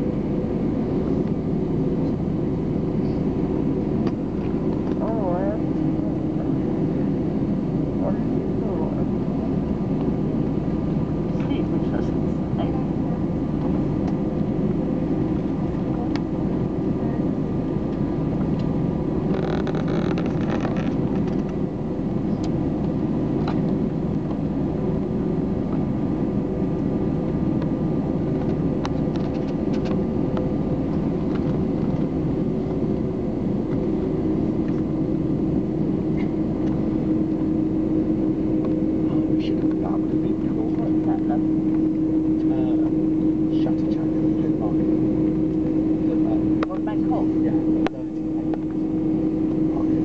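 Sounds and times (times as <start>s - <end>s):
airliner engine drone: 0.0s - 50.0s
steady hum tones: 0.0s - 50.0s.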